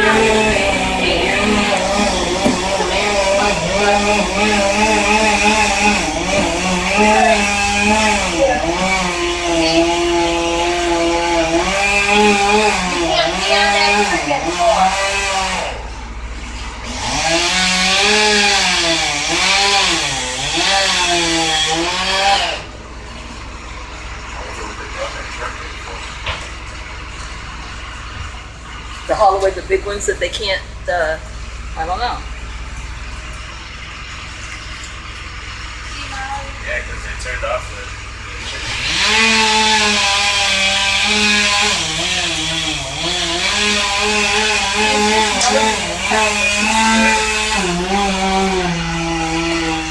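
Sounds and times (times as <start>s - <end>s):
chainsaw cutting wood: 0.0s - 15.9s, 16.6s - 22.7s, 38.4s - 49.9s.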